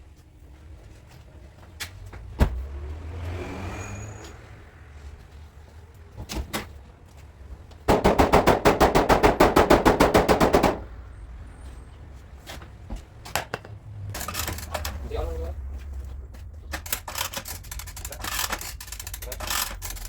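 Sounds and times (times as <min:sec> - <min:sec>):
hammering on sheet metal: 0:07.9 - 0:10.9.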